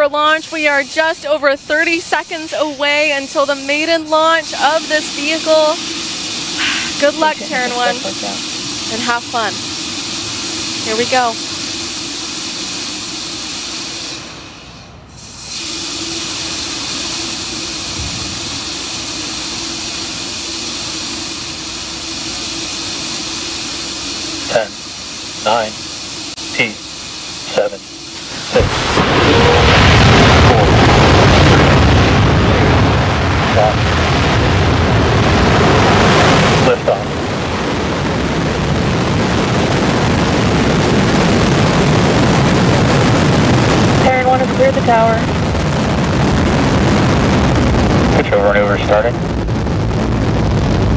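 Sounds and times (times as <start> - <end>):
steady hissing: 0.0 - 32.8
constant low hum: 0.0 - 50.9
rocket engines roaring: 0.0 - 50.9.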